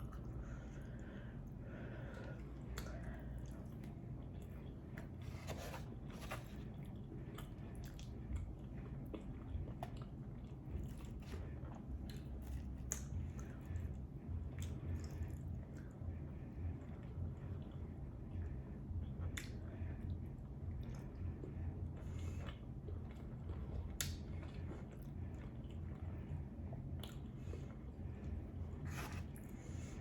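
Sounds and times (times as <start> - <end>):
chewing and wet mouth sounds: 0.0 - 30.0
low steady hum: 0.0 - 30.0.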